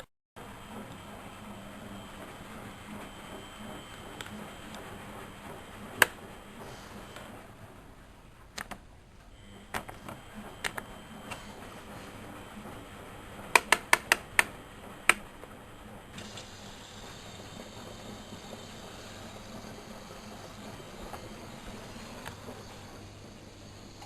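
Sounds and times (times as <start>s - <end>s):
steady low hum: 0.4s - 24.0s
washing machine clicks: 13.4s - 15.4s.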